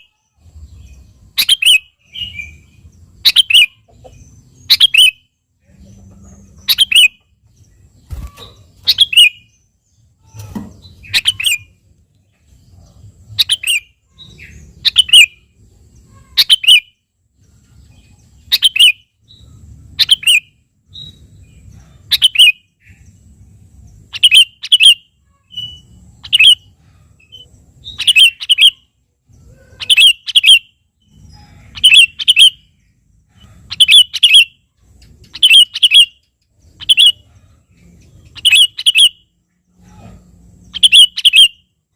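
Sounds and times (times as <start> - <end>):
bulbul chirping: 1.3 - 5.4, 6.5 - 7.4, 8.0 - 11.8, 13.1 - 15.4, 18.4 - 19.4, 20.0 - 21.3, 22.1 - 23.0, 24.0 - 28.9, 35.2 - 37.3, 38.1 - 39.3, 40.7 - 41.7.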